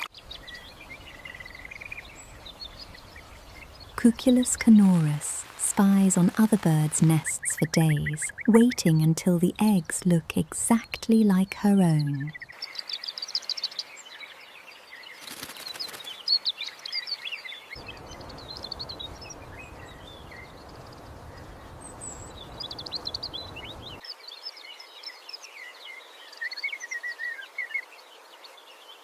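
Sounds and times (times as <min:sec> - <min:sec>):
steady background hiss: 0:00.0 - 0:15.2
small birds chirping: 0:00.0 - 0:29.0.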